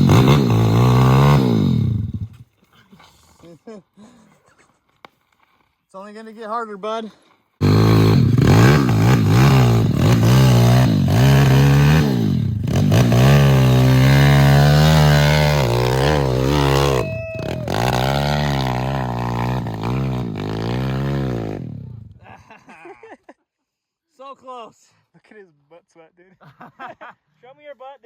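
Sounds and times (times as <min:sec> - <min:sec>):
dirt bike engine revving: 0:00.0 - 0:02.4, 0:07.6 - 0:22.2.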